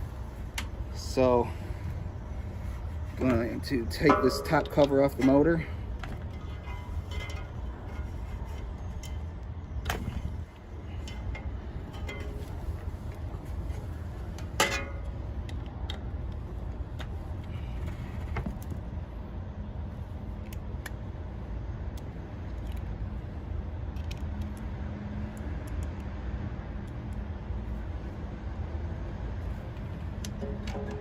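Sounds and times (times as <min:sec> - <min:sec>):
steady low rumble: 0:00.0 - 0:31.0
ringing metal clank: 0:03.9 - 0:05.7.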